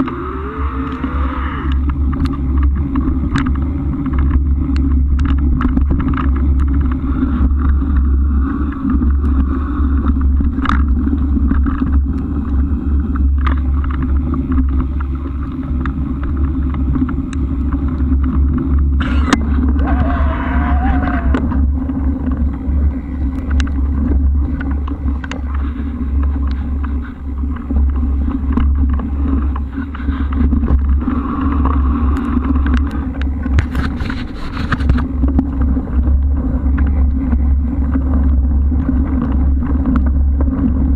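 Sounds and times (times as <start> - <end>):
road noise: 0.0 - 40.9
wind buffeting: 0.0 - 40.9.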